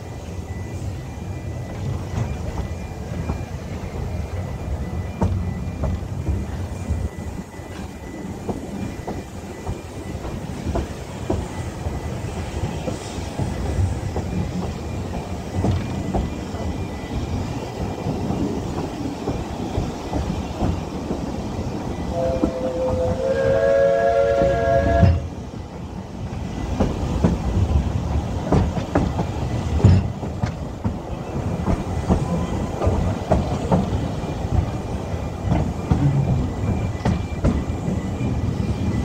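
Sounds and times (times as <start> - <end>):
train rumbling: 0.0 - 39.0
locomotive whistle: 21.9 - 25.4
wheels clicking over rail joints: 24.4 - 39.0.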